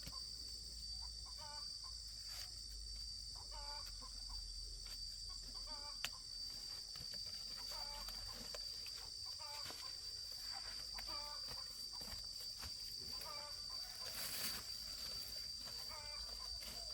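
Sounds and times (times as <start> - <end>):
high-pitched insect drone: 0.0 - 16.9.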